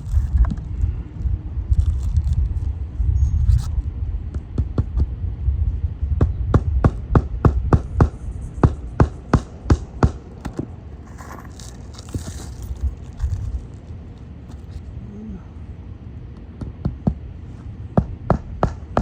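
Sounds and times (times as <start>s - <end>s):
hammer driving nails into shingle: 6.6s - 10.7s, 18.0s - 19.0s.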